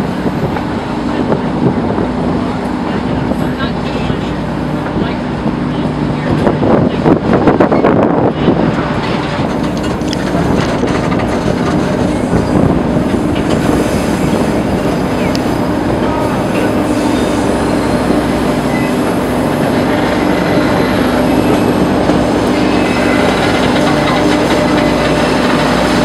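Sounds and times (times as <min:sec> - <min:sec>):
train wheels rumbling on rails: 0:00.0 - 0:26.0
high wheel squeals: 0:16.0 - 0:26.0.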